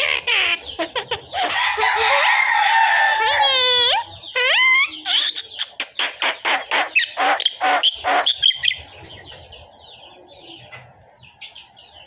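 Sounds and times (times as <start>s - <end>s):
talking bird calling: 0.0s - 11.8s.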